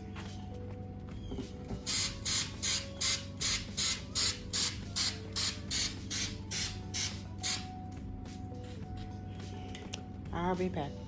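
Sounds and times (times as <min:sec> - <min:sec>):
spray paint can hissing bursts: 0:01.8 - 0:07.7.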